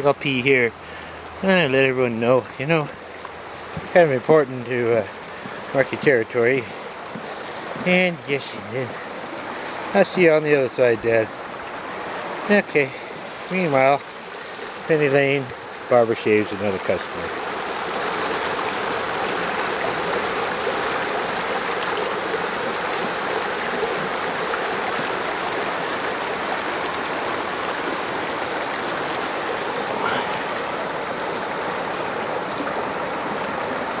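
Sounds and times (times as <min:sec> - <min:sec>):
stream water running: 0:00.0 - 0:34.0.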